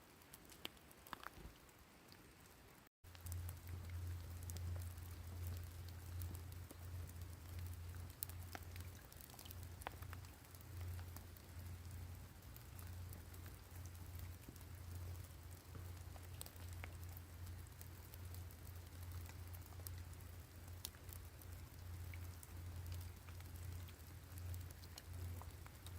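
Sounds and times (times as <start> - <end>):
soft rain patter: 0.0 - 25.9
raindrops ticking: 0.1 - 25.9
low pulsing hum: 3.1 - 25.9.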